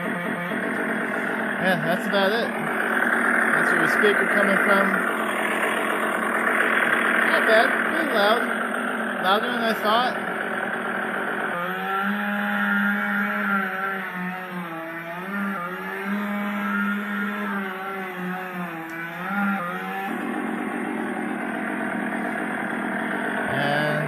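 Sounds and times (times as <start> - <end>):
chainsaw sound effect from small speaker: 0.0 - 24.0.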